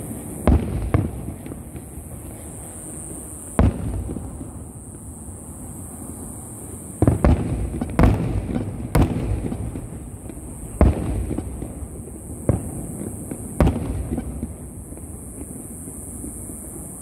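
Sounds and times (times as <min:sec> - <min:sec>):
firework shells booming: 0:00.4 - 0:02.2, 0:03.6 - 0:04.7, 0:07.0 - 0:15.5.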